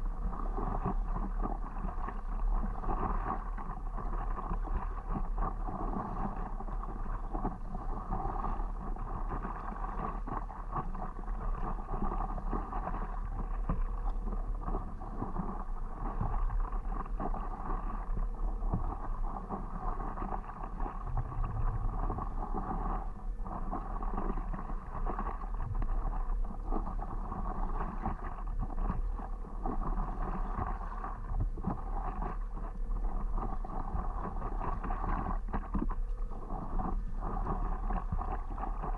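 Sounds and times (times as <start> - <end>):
paddle strokes: 0.0 - 38.9
wind rumble on microphone: 0.0 - 38.9
water splashing: 8.0 - 38.9.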